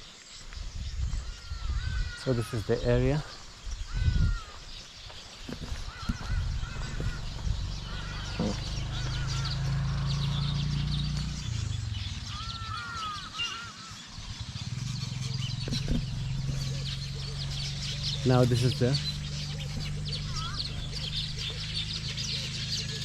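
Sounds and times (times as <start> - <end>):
birds chirping: 0.0 - 23.0
short arching whistled bird calls: 5.4 - 23.0.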